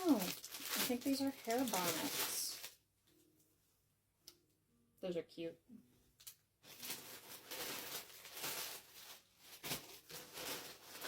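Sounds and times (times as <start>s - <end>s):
plastic wrap rustling and crinkling: 0.0s - 3.3s, 6.2s - 11.0s.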